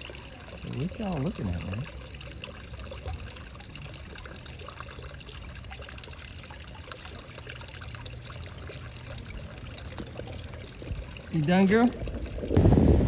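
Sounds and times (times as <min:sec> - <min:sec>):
water trickling: 0:00.0 - 0:13.0
low rumble: 0:12.0 - 0:13.0.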